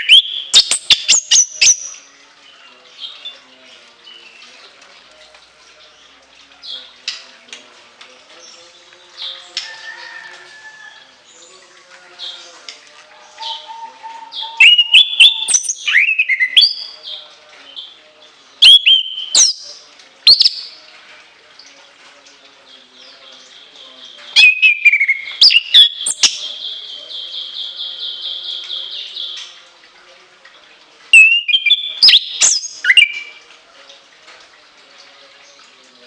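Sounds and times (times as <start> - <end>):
bird trill: 0.0 - 2.1, 13.4 - 17.0, 18.6 - 20.8, 24.4 - 29.4, 31.2 - 33.4
thrush singing whistled notes: 0.0 - 2.1, 13.3 - 17.0, 18.6 - 20.8, 24.4 - 26.4, 31.1 - 33.4.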